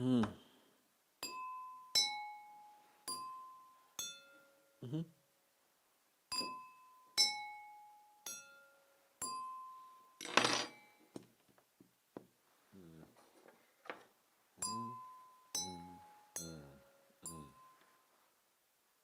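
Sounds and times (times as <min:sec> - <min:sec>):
objects clinking when struck: 0:10.2 - 0:10.8.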